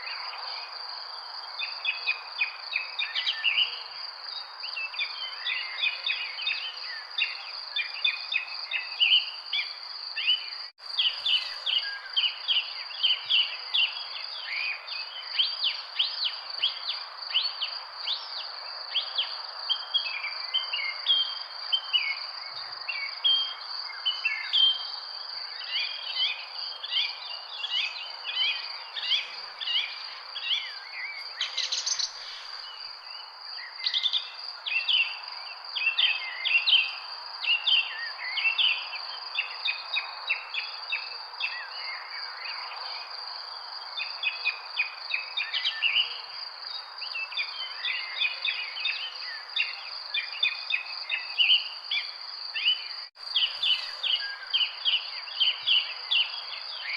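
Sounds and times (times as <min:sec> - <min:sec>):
insect trill: 0:00.0 - 0:56.9
small birds chirping: 0:01.4 - 0:56.9
background hiss: 0:25.2 - 0:35.7, 0:53.2 - 0:56.9.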